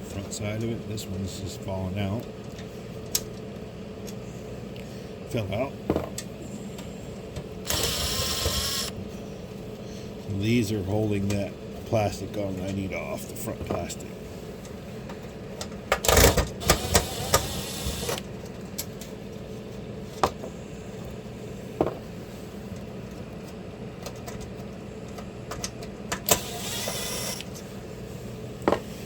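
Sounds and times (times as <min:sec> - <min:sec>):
screwdriver whirring: 0:07.6 - 0:09.0, 0:16.1 - 0:18.3, 0:26.2 - 0:27.6.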